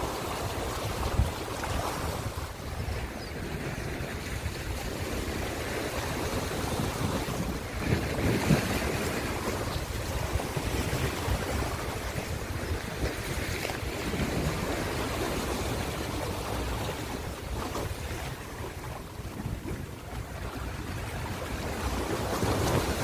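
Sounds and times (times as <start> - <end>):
ocean waves washing in: 0.0 - 23.0.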